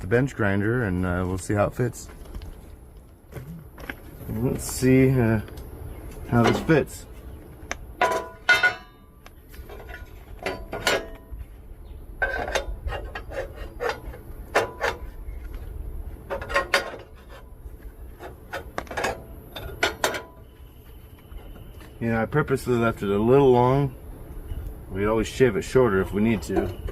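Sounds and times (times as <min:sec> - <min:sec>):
metal clinks and scrapes: 0:08.0 - 0:11.4, 0:12.2 - 0:15.2, 0:16.3 - 0:20.5.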